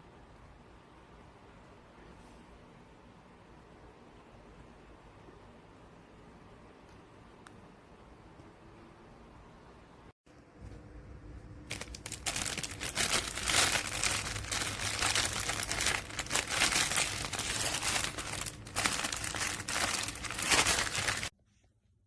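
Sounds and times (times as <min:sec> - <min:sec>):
plastic packaging crinkling: 0:11.7 - 0:21.3.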